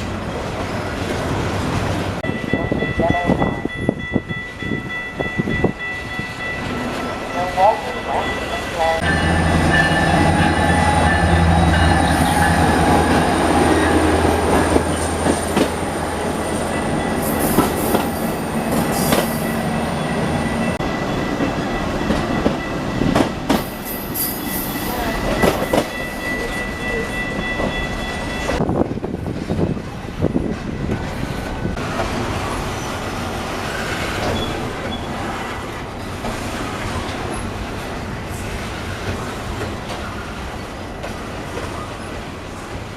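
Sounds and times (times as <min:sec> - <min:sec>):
diesel locomotive engine droning: 0:00.0 - 0:42.9
high wheel squeal: 0:33.7 - 0:35.5.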